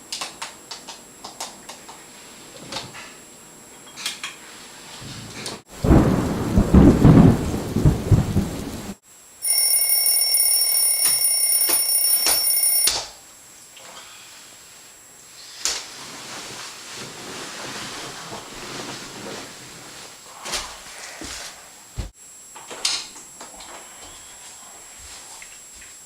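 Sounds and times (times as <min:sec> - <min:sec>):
thunderclap rumbling: 0:05.7 - 0:09.0
alarm clock ringing: 0:09.4 - 0:12.9.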